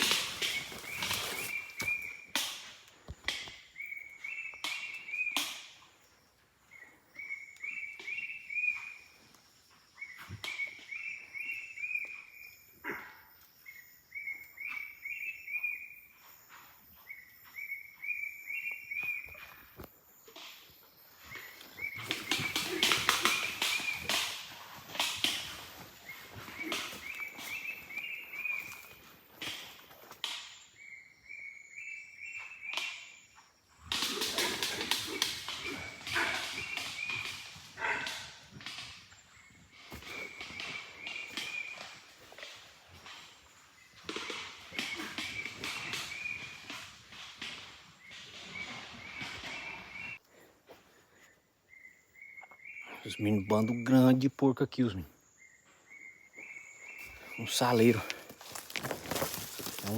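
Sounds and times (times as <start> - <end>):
footsteps crunching dry leaves: 0.0 - 2.2, 57.0 - 59.9.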